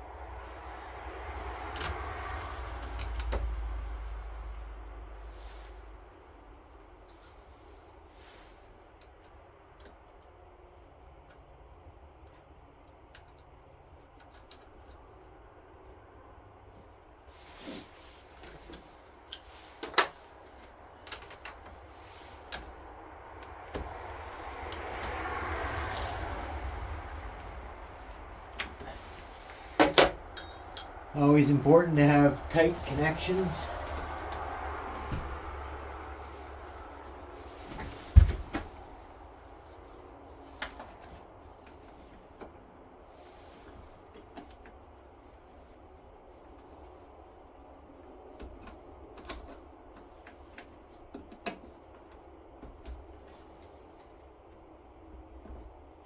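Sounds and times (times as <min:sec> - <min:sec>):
low steady hum: 0:12.3 - 0:40.4.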